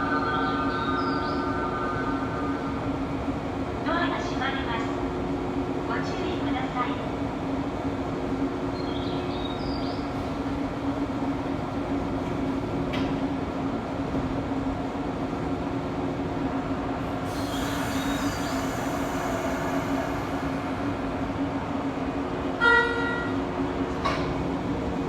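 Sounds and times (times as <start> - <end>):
electric train humming: 0.0 - 25.0
hiss: 17.2 - 20.9.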